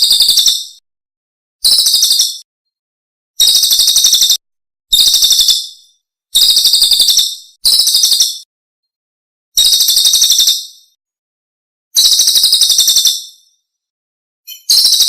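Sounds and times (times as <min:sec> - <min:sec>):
songbird trills: 0:00.0 - 0:00.8, 0:01.6 - 0:02.4, 0:14.5 - 0:15.0.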